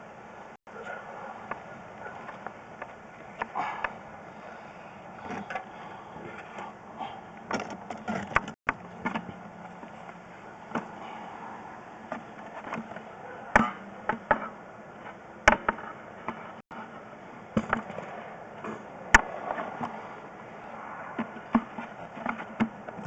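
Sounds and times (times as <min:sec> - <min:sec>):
steady background hiss: 0:00.0 - 0:07.5
sharp knocks and clunks: 0:07.4 - 0:09.4, 0:12.1 - 0:20.0, 0:21.1 - 0:23.0.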